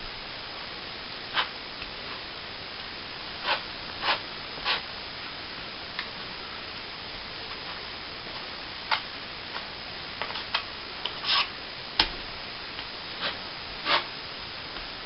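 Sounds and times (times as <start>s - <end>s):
trowel scraping: 11.2s - 11.5s, 13.2s - 14.1s.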